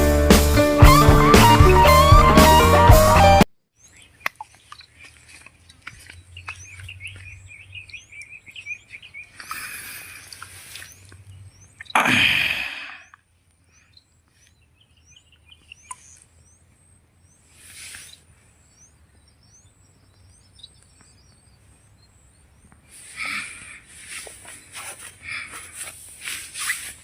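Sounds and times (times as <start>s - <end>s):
small birds chirping: 3.7s - 27.0s
brief rustling burst: 24.0s - 27.0s.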